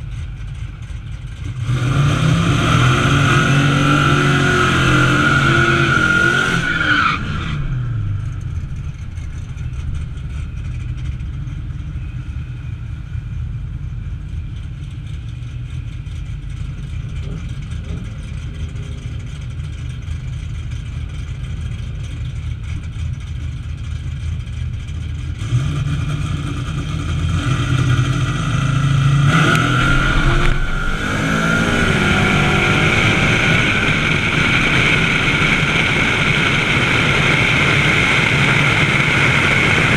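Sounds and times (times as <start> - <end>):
car engine revving: 0.0 - 11.5, 16.2 - 39.9.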